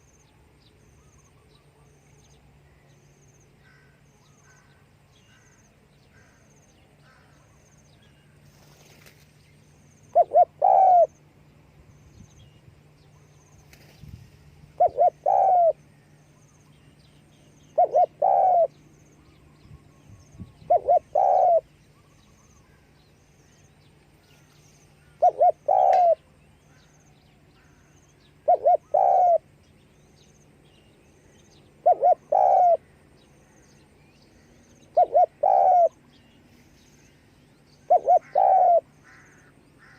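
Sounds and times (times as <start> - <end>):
faint low hum: 0.0 - 39.9
dove cooing: 10.1 - 11.2, 14.7 - 15.8, 17.7 - 18.8, 20.6 - 21.7, 25.0 - 26.3, 27.6 - 29.5, 31.8 - 32.9, 34.8 - 36.1, 37.8 - 39.9.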